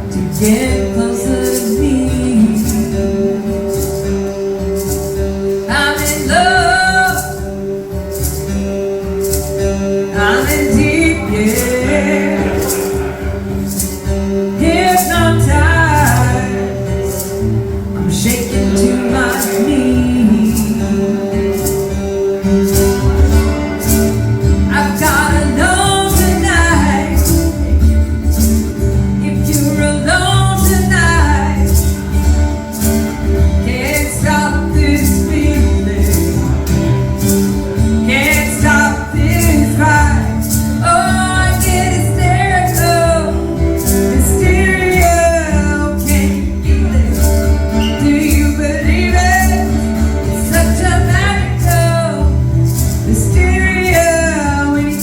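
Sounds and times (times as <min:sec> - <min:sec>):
person singing: 0:00.0 - 0:04.1, 0:10.1 - 0:24.1, 0:33.6 - 0:55.0
instrumental backing: 0:00.0 - 0:55.0
steady percussive beat: 0:07.1 - 0:29.8.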